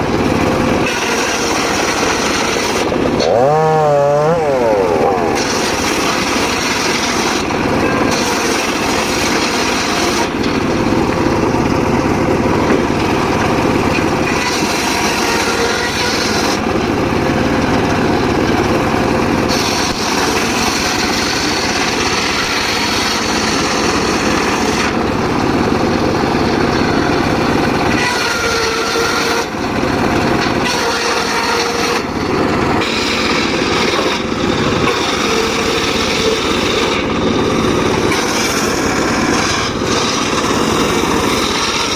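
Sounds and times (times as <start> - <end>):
circular saw drone: 0.0 - 41.9
saw blade cutting wood: 0.0 - 41.9.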